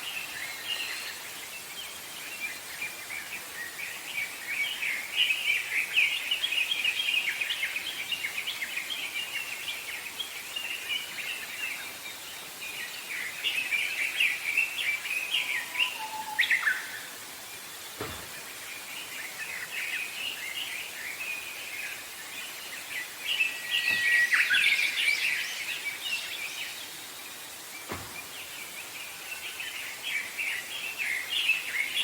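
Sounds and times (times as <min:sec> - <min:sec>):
songbirds chirping and singing: 0:00.0 - 0:32.0
low whistled bird note: 0:23.4 - 0:25.3.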